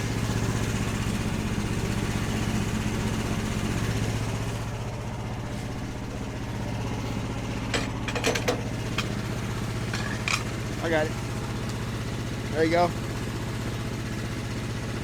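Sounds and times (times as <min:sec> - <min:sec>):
engine idling: 0:00.0 - 0:15.0
sharp metal clanks: 0:09.8 - 0:10.5.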